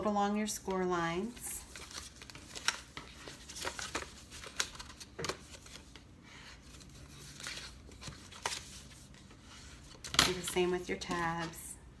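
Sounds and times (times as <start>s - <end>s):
cardstock being folded and creased: 1.6s - 10.2s.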